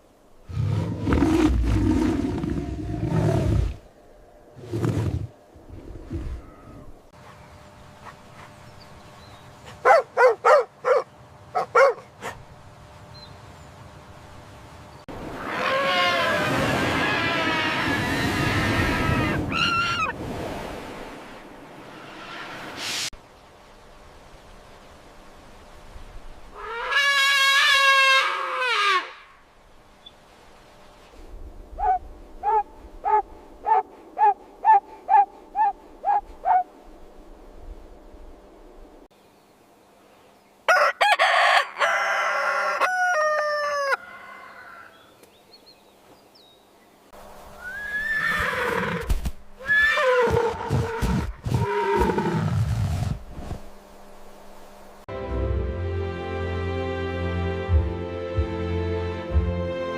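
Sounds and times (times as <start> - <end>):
dog barking: 9.8 - 12.4, 31.8 - 36.7.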